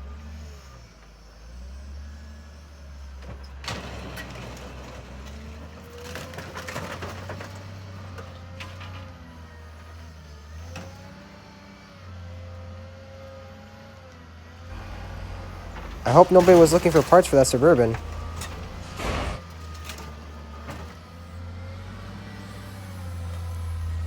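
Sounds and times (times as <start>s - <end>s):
sharp metal bang: 14.7s - 19.4s
hydraulic whine: 14.7s - 20.8s
metal crunching and clanking: 14.7s - 20.9s
diesel engine running: 14.7s - 24.0s.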